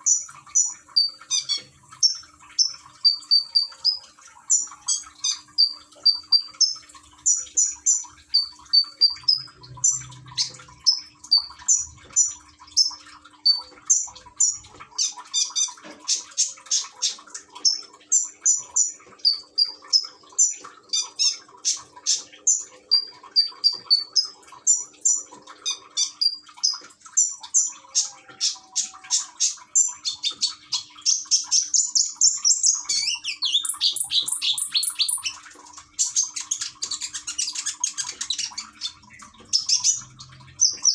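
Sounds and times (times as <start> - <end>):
sunbird singing chirps and trills: 0.0 - 14.6, 29.8 - 35.4
faint trickle of water: 0.0 - 40.9.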